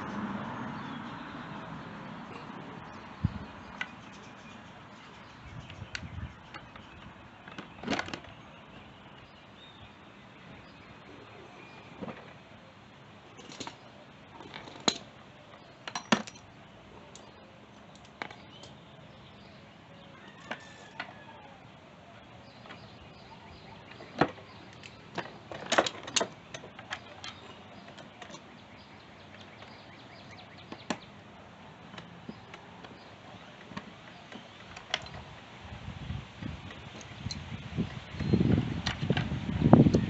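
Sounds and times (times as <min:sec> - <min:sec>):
metal tools clinking and knocking: 0:15.8 - 0:16.5.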